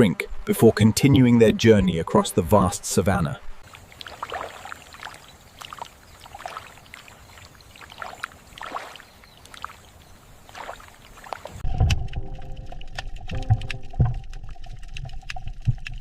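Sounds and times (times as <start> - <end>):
water splashing and lapping: 3.5 - 16.0
low thuds: 11.6 - 16.0.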